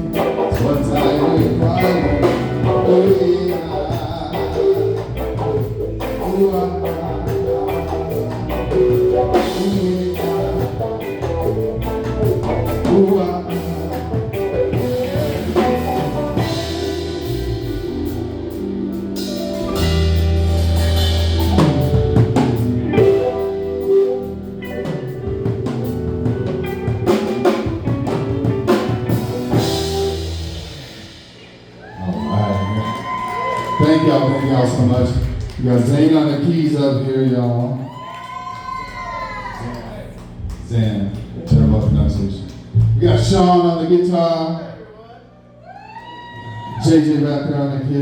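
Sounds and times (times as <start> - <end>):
drum kit: 0.0 - 33.8
keyboards: 0.0 - 37.8
guitar: 0.0 - 44.8, 45.4 - 48.0
bass: 0.0 - 48.0.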